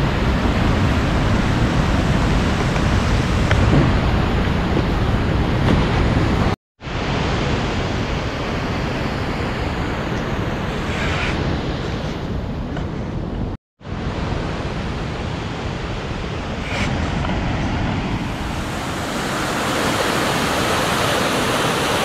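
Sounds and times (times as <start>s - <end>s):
whitewater river rushing: 16.4s - 22.0s.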